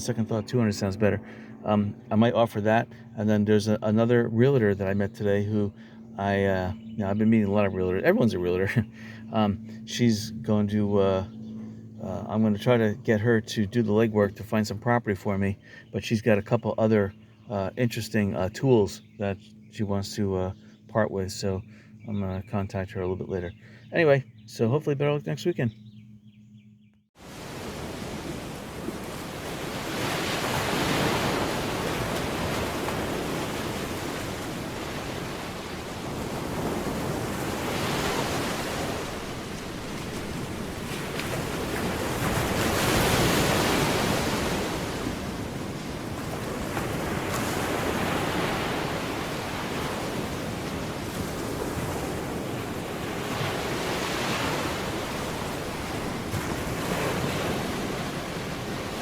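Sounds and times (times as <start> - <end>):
ocean waves breaking: 0.0 - 6.8, 27.2 - 59.0.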